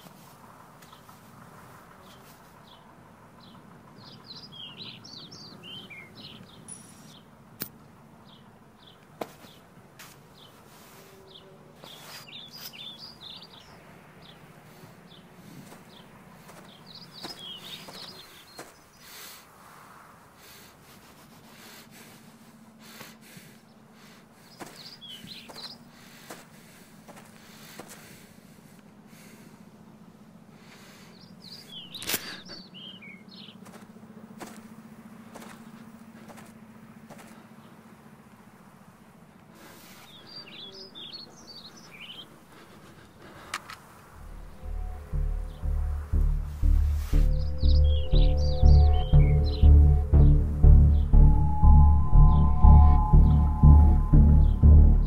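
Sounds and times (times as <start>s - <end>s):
low outdoor hum: 0.0s - 55.0s
birds chirping: 0.7s - 19.6s, 20.3s - 55.0s
faint low background: 43.1s - 55.0s.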